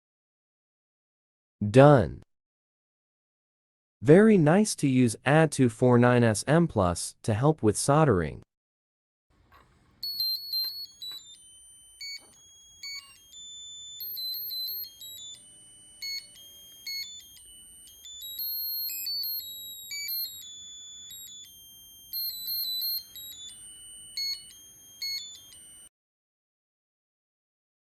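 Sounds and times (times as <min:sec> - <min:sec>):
electronic buzzer beeping tune: 0:10.0 - 0:25.9.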